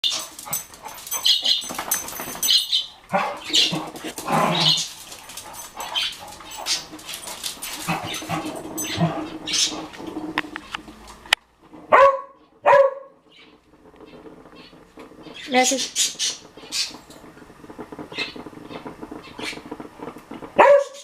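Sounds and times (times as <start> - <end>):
birds chirping: 0.0 - 9.9, 13.2 - 17.1
dog barking and whining: 0.0 - 9.9, 11.9 - 13.2, 20.6 - 21.0
birds fluttering wings: 0.0 - 11.3, 13.3 - 20.5.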